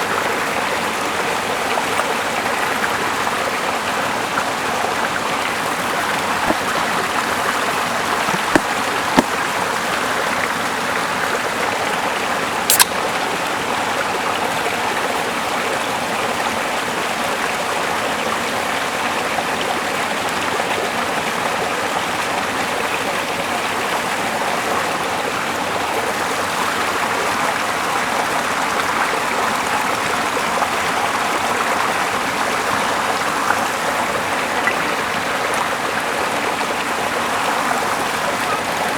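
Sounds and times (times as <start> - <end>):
small river flowing: 0.0 - 38.9
short sharp clicks: 12.7 - 13.0.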